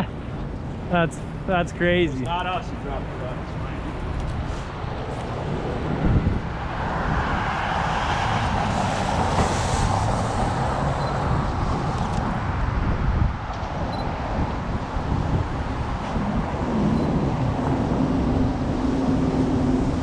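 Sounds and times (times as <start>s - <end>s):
street traffic: 0.0s - 20.0s
wind buffeting microphone: 0.0s - 20.0s
vehicle passing: 1.1s - 12.6s.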